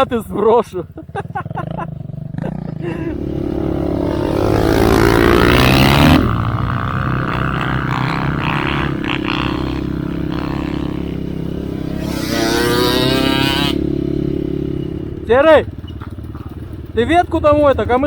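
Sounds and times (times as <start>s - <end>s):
motorcycle engine revving: 0.9s - 18.0s.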